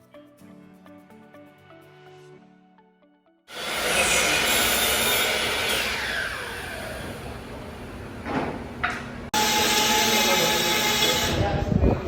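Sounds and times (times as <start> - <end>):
electric saw winding down: 3.5 - 8.0, 9.4 - 11.5.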